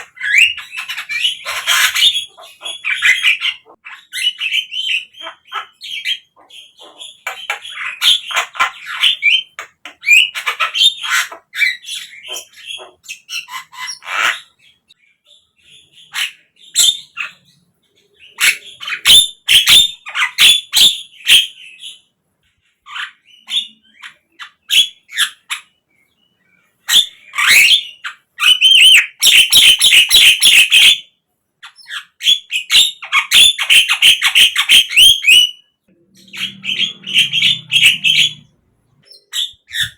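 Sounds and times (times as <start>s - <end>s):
bird chattering and whistling: 0.0s - 14.8s, 31.6s - 39.9s.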